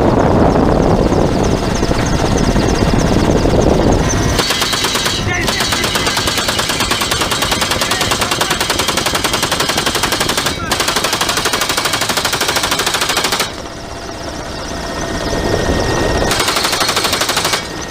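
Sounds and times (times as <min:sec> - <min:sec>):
helicopter noise: 0:00.0 - 0:17.9
machine gun firing bursts: 0:04.4 - 0:13.9, 0:16.3 - 0:17.9.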